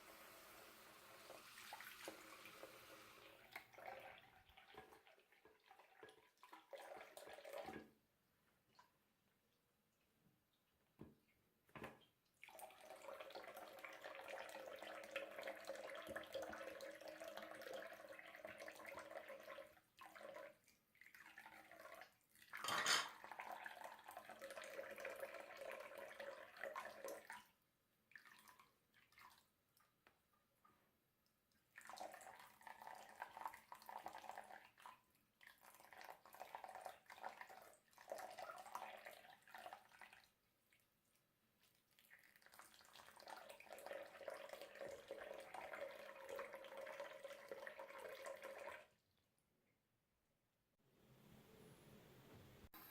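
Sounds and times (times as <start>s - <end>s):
tap water running into basin: 0.0s - 8.0s, 11.7s - 27.5s, 31.7s - 40.4s, 41.8s - 49.0s.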